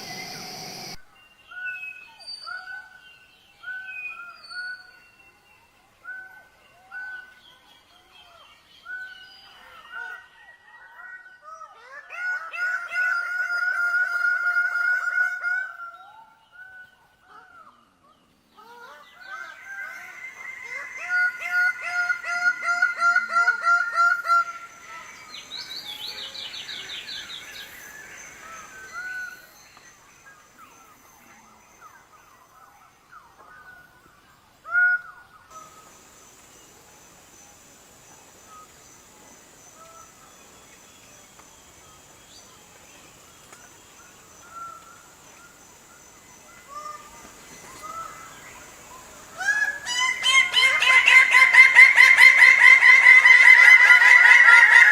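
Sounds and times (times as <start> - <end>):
high-pitched hum: 0.0 - 1.0
songbird singing: 0.0 - 11.0, 11.6 - 54.9.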